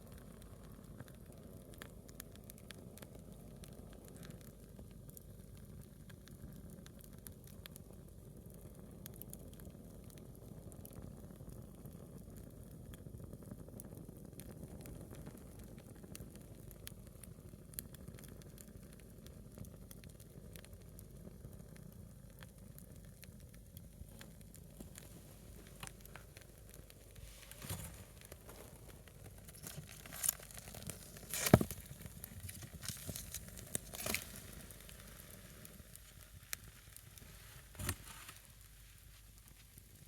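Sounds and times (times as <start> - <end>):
fire crackling and popping: 0.0 - 40.0
log fire hissing: 20.2 - 40.0.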